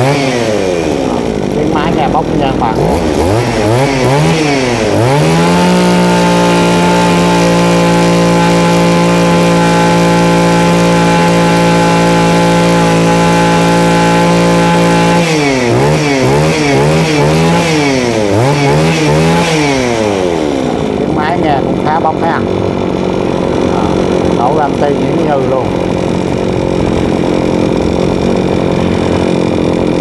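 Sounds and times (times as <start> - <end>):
brush cutter engine revving: 0.0 - 30.0.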